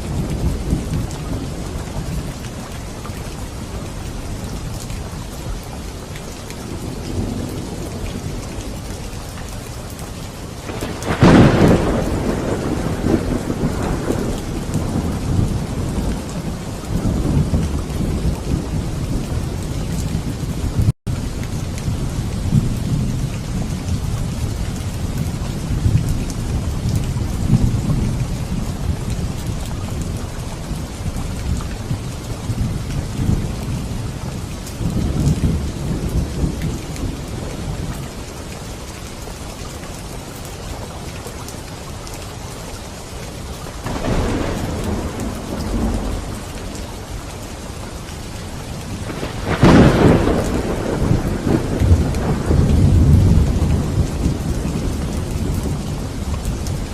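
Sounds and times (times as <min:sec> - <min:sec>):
low thunder rumbling: 0:00.0 - 0:05.4, 0:06.4 - 0:38.4, 0:43.8 - 0:56.9
steady rain: 0:00.0 - 0:56.9
sharp thunderclap: 0:10.6 - 0:20.9, 0:43.8 - 0:47.2, 0:48.9 - 0:56.9.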